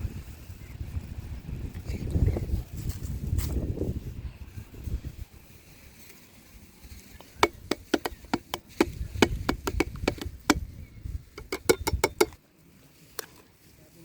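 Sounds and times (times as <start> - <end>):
sharp chopping knocks: 7.4 - 10.6, 11.4 - 12.4.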